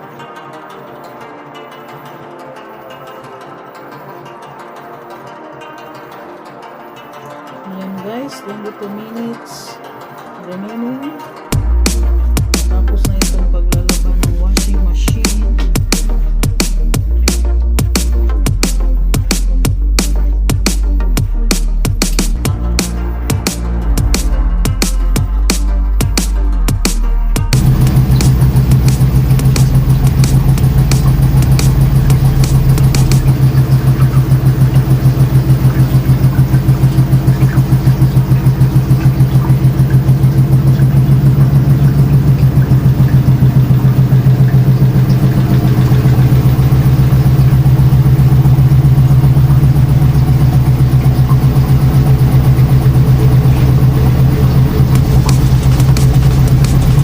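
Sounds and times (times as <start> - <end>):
washing machine humming: 27.6 - 57.0.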